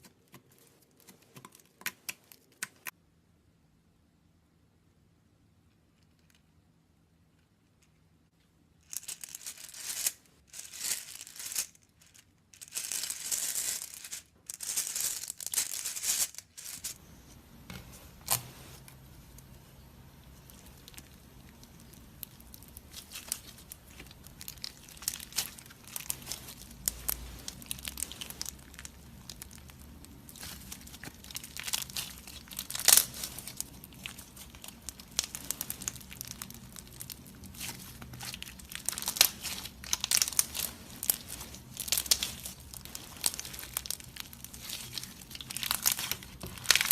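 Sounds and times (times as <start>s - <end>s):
slime squished crackling: 19.0s - 46.9s.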